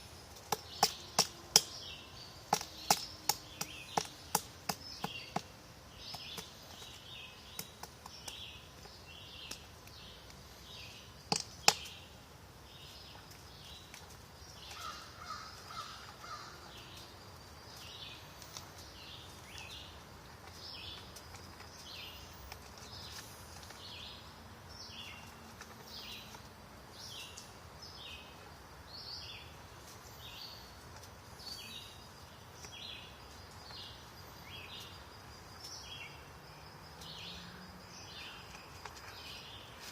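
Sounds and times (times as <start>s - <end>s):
woodpecker pecking on wood: 0.4s - 1.8s, 2.4s - 10.4s, 11.2s - 12.0s.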